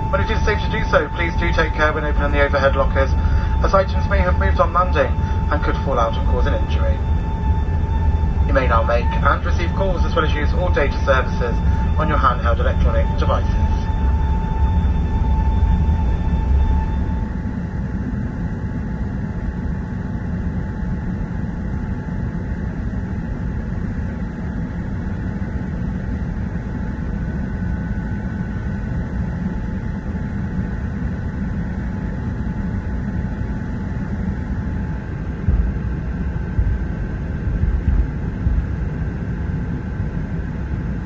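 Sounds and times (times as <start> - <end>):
aircraft cabin engine rumble: 0.0 - 41.0
faint steady whine: 0.0 - 41.0
low thumps: 35.3 - 39.4.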